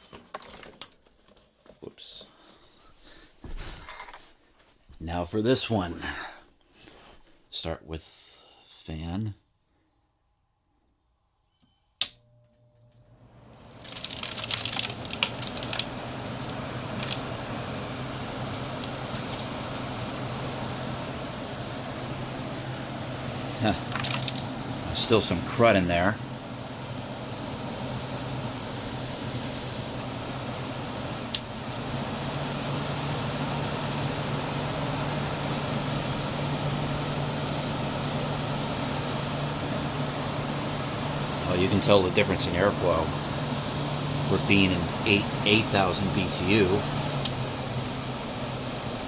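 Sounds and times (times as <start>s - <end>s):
air conditioner fan motor humming: 12.0s - 49.0s.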